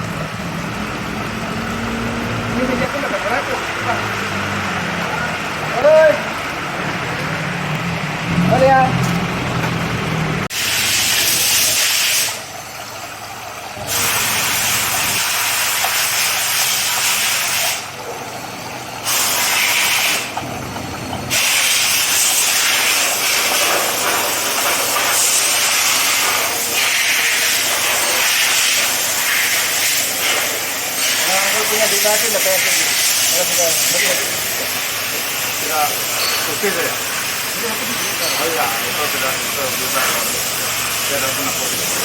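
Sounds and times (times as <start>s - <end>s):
high-pressure jet hissing: 10.5s - 12.7s, 13.7s - 18.1s, 19.0s - 42.0s.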